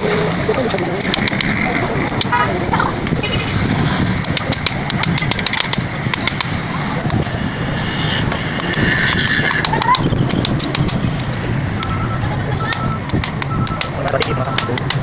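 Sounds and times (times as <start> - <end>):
background rumble: 0.0 - 15.0
metallic hand tool clicks: 1.0 - 2.4, 4.2 - 7.4, 8.3 - 12.0, 12.7 - 15.0.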